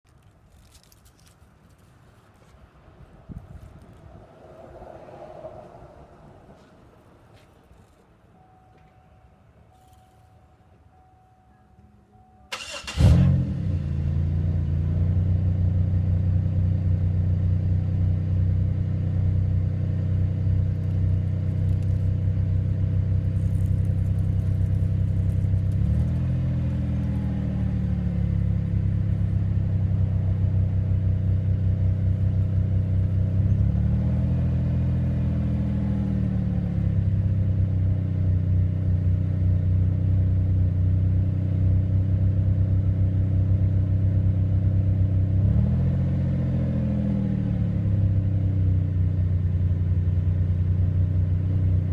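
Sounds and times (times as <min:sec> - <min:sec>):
car engine starting and idling: 0:07.7 - 0:51.9
engine revving: 0:12.5 - 0:16.3, 0:23.4 - 0:37.3, 0:45.0 - 0:48.4.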